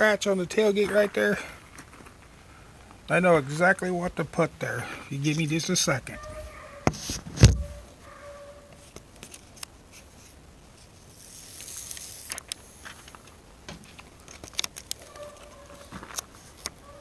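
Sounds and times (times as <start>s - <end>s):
faint clicks: 11.6s - 16.9s.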